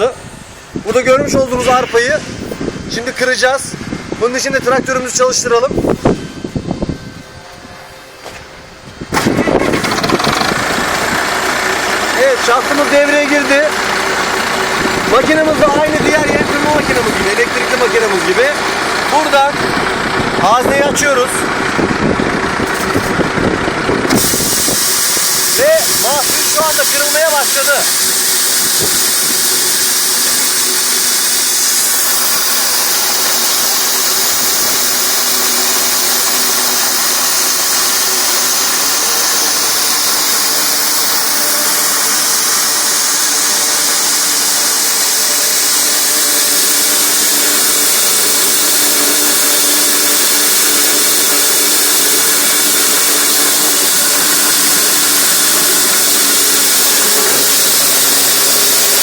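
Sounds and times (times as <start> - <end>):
tractor engine humming: 0.0 - 59.0
feed grinder crushing grain: 9.1 - 59.0.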